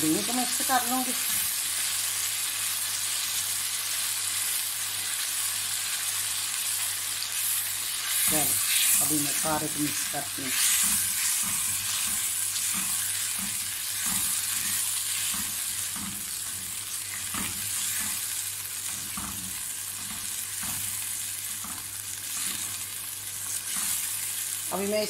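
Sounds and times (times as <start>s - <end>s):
meat sizzling in sauce: 0.0s - 25.0s
spatula stirring and scraping: 7.4s - 24.6s.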